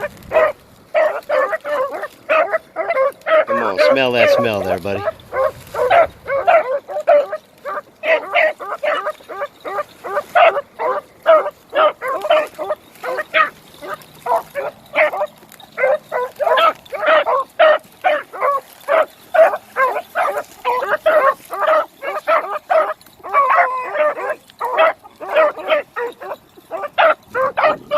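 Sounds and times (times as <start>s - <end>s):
beagles barking: 0.0s - 27.9s.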